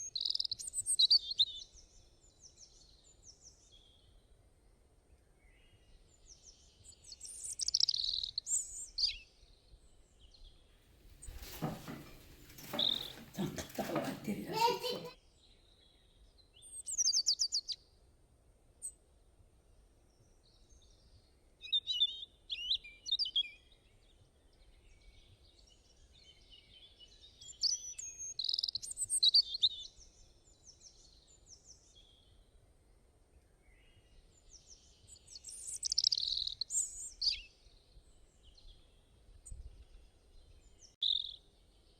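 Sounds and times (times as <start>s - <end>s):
small birds chirping and trilling: 0.0s - 1.8s, 6.3s - 9.6s, 11.2s - 15.1s, 25.3s - 29.9s, 34.4s - 38.8s, 40.4s - 41.9s.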